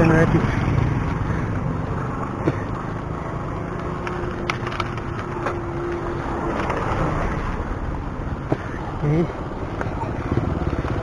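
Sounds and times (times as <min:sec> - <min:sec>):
bicycle road rumble: 0:00.0 - 0:11.0.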